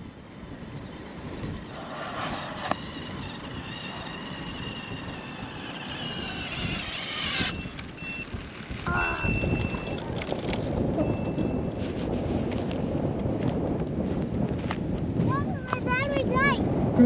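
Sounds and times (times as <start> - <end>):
wind buffeting microphone: 0.0 - 17.0
electric motor whining: 1.2 - 12.0.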